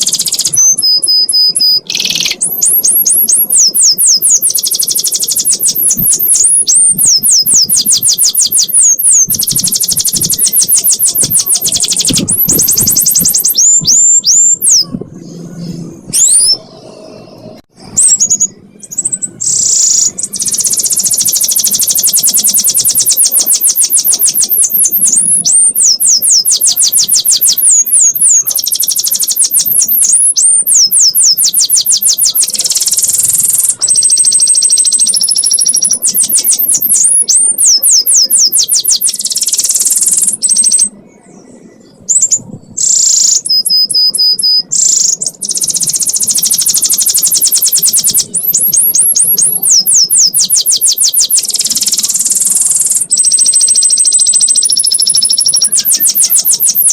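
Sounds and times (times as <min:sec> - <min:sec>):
canary singing: 0:00.0 - 0:56.9.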